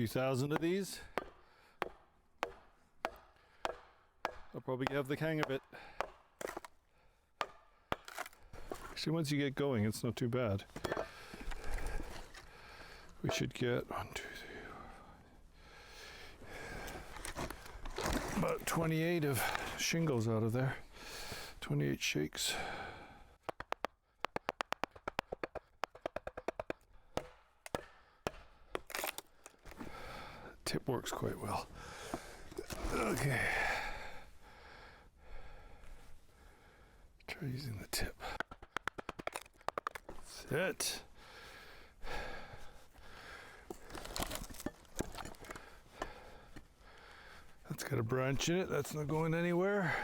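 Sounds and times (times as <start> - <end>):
wood splitting with cracks: 0.5 - 6.8, 7.4 - 8.9, 17.0 - 18.7, 23.5 - 30.0, 38.2 - 40.3, 43.7 - 46.2
wooden mallet tapping a froe: 23.4 - 28.4.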